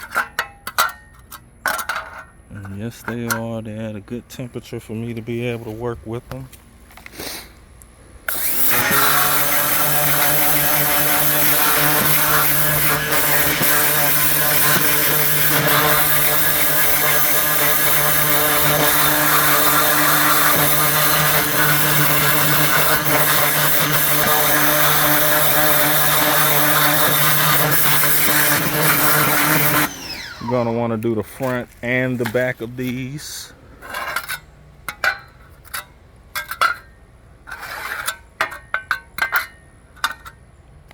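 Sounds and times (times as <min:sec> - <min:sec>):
pressure washer motor humming: 0:08.3 - 0:32.4
water jet spraying grill grates: 0:08.3 - 0:33.4.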